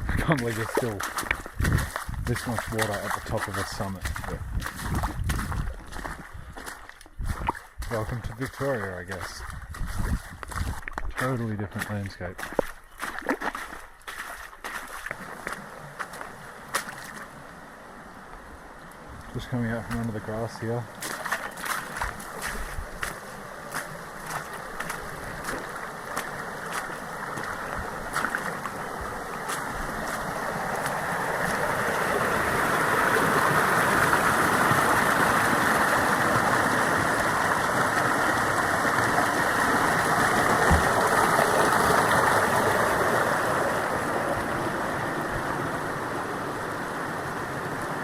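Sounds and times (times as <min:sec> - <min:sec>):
rushing water: 0:00.0 - 0:48.0
sharp clicks of footfalls: 0:00.4 - 0:08.6, 0:21.0 - 0:23.2.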